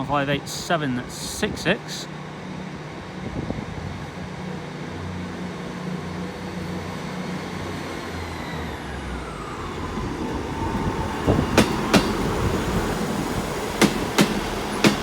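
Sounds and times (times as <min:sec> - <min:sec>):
train whine falling in pitch: 0:07.5 - 0:15.0
wheels clicking over rail joints: 0:10.3 - 0:15.0.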